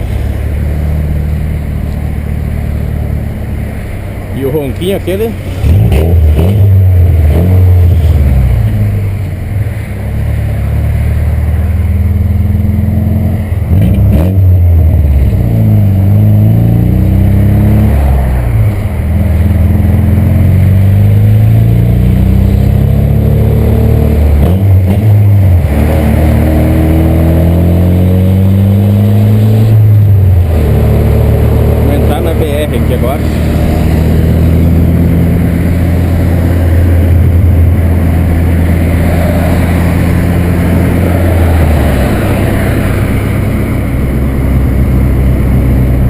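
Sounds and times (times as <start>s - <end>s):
car engine rumbling while accelerating: 0.0s - 46.0s.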